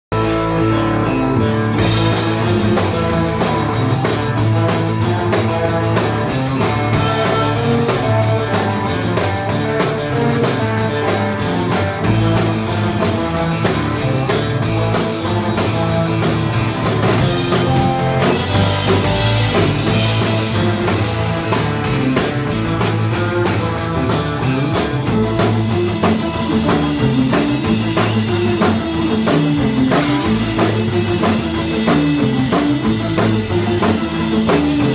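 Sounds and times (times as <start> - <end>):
instrumental surf rock band: 0.1 - 34.9.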